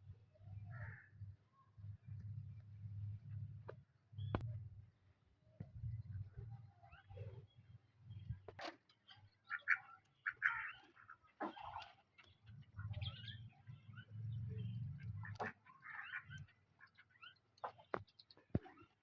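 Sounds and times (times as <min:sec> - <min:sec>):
birds pecking: 0:08.5 - 0:12.7, 0:15.1 - 0:19.0
hens and ducks calling: 0:09.4 - 0:12.0, 0:15.2 - 0:17.0.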